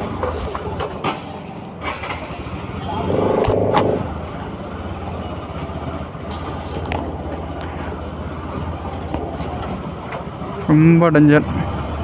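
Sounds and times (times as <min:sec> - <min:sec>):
motorcycle engine running: 0:02.9 - 0:04.6
motorcycle horn: 0:03.0 - 0:04.1.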